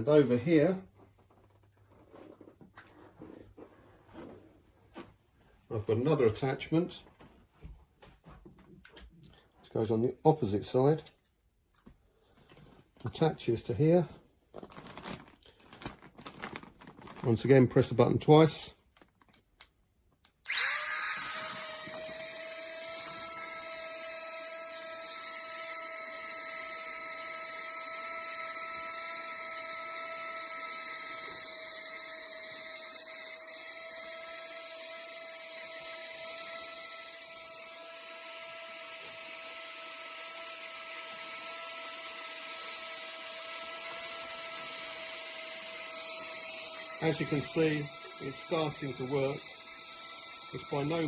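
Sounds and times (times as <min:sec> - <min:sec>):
electric air pump whining: 0:20.5 - 0:51.0.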